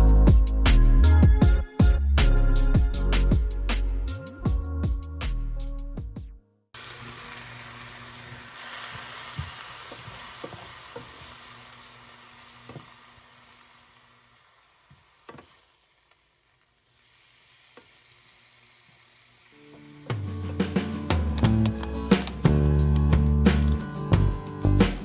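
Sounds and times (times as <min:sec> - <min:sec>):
food sizzling in a frying pan: 0:06.8 - 0:23.7.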